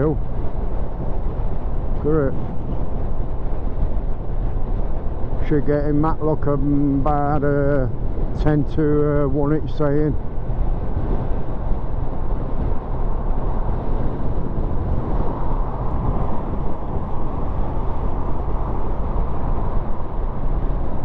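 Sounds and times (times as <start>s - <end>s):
wind and road noise: 0.0s - 21.0s
motorcycle engine humming: 10.1s - 21.0s.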